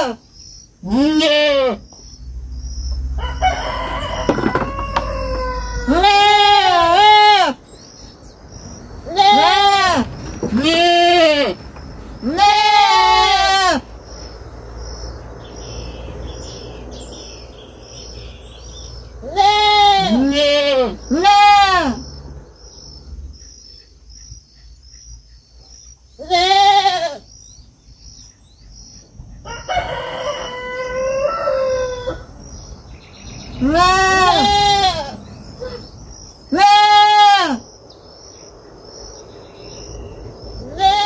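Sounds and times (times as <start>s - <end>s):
young goat bleating: 0.8s - 1.8s, 5.3s - 7.6s, 9.0s - 11.6s, 12.2s - 13.9s, 19.2s - 22.0s, 26.2s - 27.3s, 33.6s - 35.8s, 36.5s - 37.6s, 40.6s - 41.0s
rooster crowing: 3.1s - 7.6s, 29.4s - 32.4s.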